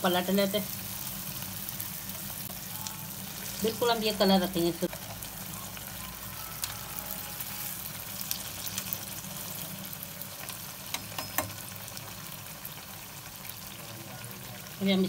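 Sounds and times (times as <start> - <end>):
bread sizzling in hot fat: 0.0 - 15.0
steel tongs clicking on pan: 10.9 - 11.7.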